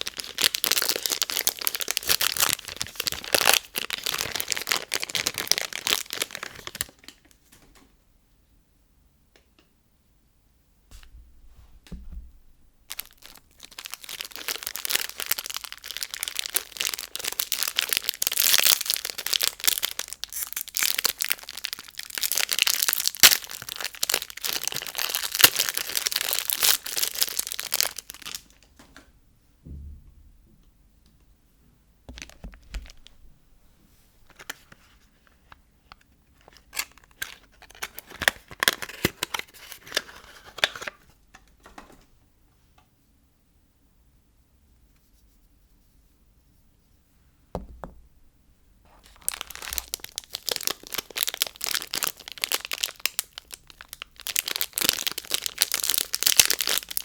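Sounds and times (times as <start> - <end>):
packaging tearing and crinkling: 0.0 - 7.2, 12.9 - 28.7, 32.2 - 33.2, 36.4 - 41.0, 49.0 - 57.0.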